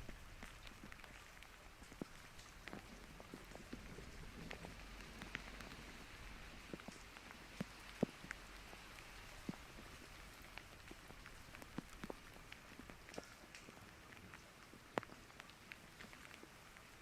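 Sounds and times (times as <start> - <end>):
light rain hissing: 0.0 - 17.0
raindrop taps: 0.0 - 17.0.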